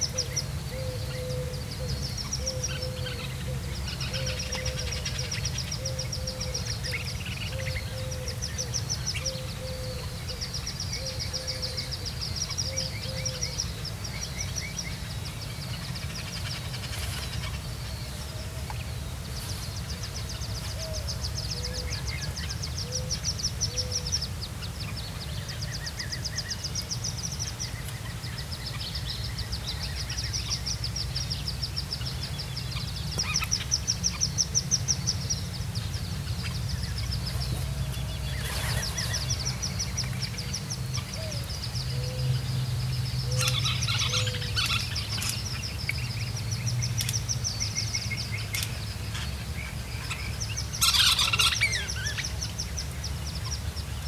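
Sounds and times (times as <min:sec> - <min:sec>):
ducklings peeping: 0:18.6 - 0:54.0.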